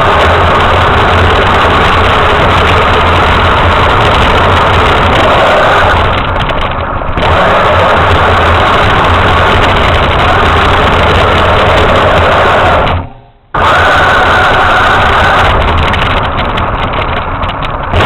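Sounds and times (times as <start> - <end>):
toy truck motor running: 7.2 - 12.9.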